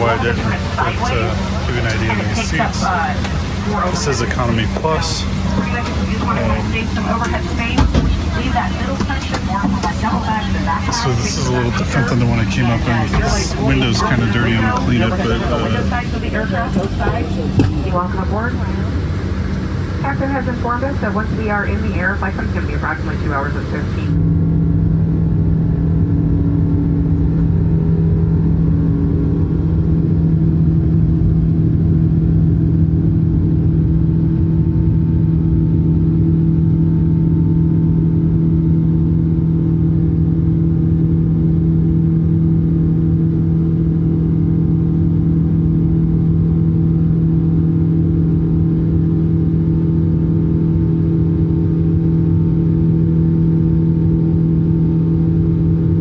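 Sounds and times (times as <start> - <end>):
airliner cabin engine drone: 0.0 - 56.0.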